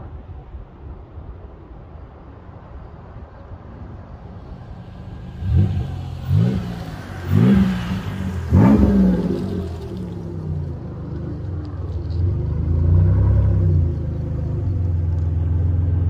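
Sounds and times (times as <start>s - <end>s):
car exhaust rumbling: 4.2s - 16.0s
engine revving: 4.4s - 11.5s, 12.1s - 14.6s.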